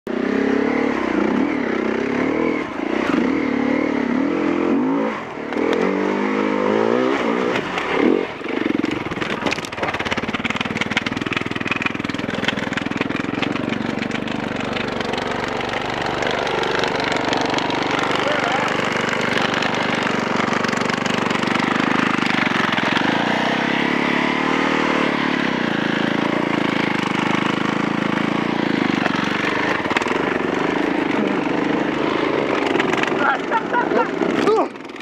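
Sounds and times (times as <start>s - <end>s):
motorcycle engine revving: 0.1s - 35.0s
rattle of rapid clicks: 8.8s - 18.2s, 32.4s - 33.2s, 34.2s - 35.0s.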